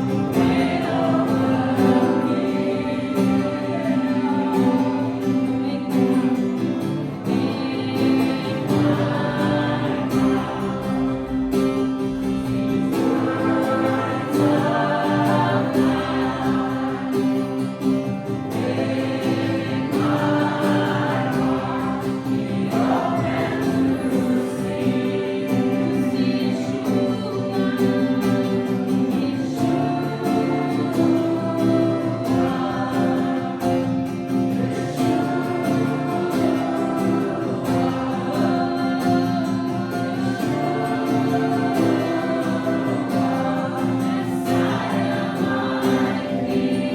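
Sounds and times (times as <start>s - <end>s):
many voices singing: 0.0s - 46.9s.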